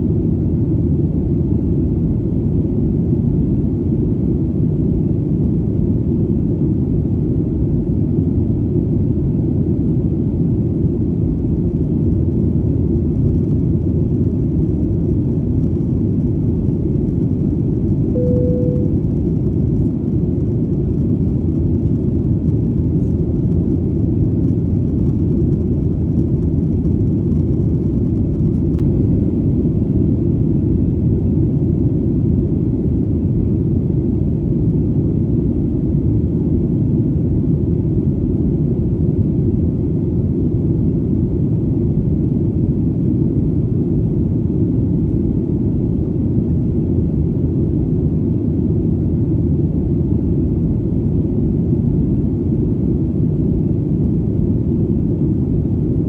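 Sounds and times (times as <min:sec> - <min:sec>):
airplane engine drone: 0:00.0 - 0:56.0.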